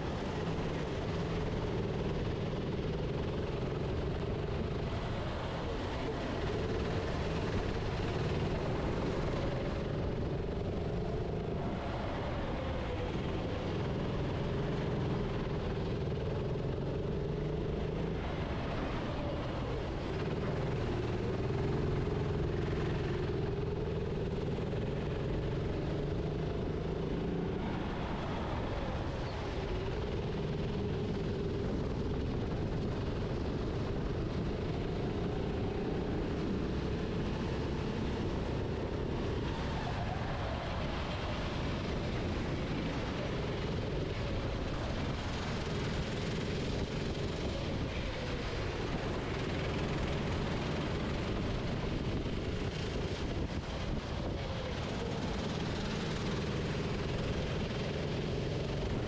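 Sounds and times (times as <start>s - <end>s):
low rumble of kart on track: 0.0s - 59.0s.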